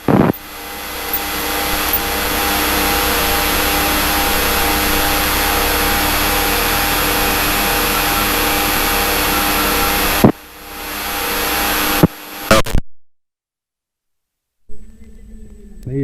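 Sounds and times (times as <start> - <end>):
airplane engine and propeller: 0.0 - 12.5.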